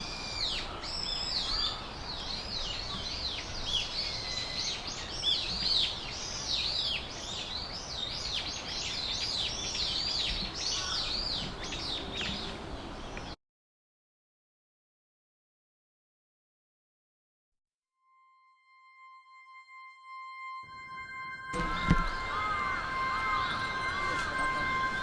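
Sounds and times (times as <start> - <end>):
songbirds chirping: 0.0 - 13.4, 21.5 - 25.0
high thin bird call: 20.7 - 25.0.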